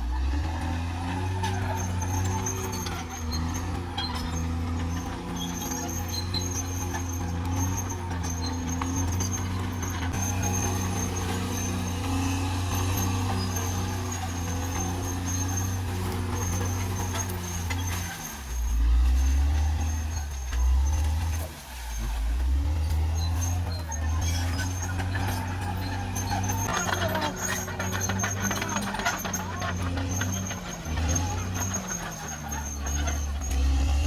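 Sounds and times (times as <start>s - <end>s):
bulldozer diesel engine running: 0.0s - 34.0s.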